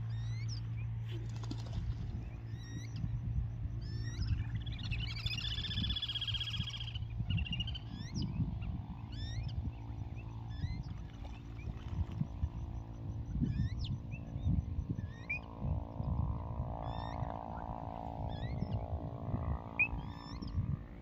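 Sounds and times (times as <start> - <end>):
droning hum: 0.0 - 21.0
low irregular rumble: 0.0 - 21.0
bird chirps and whistles: 3.8 - 10.8, 12.4 - 15.5, 19.8 - 20.5.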